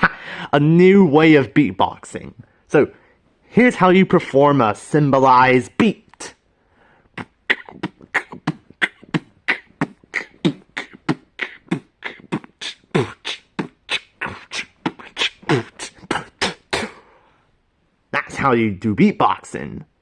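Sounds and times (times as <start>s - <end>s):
vocal beatbox: 7.1s - 17.1s.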